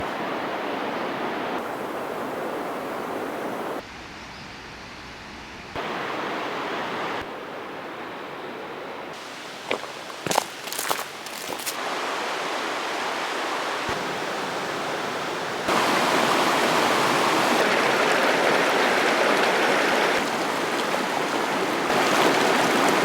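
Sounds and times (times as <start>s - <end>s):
river water rushing: 5.8s - 8.0s, 9.1s - 23.0s.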